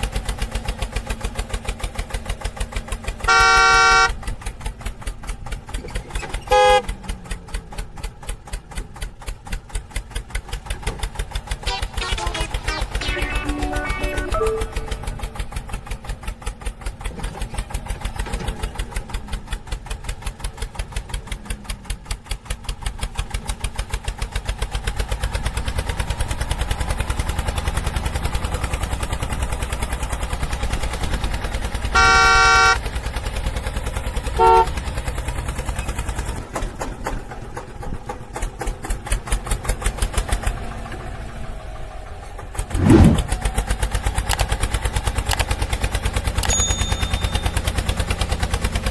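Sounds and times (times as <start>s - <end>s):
tractor engine chugging: 0.0s - 48.9s
horn honking: 3.2s - 4.2s, 6.4s - 6.9s, 11.6s - 15.6s, 31.9s - 32.8s, 34.4s - 34.8s
loud swoop: 42.7s - 43.4s.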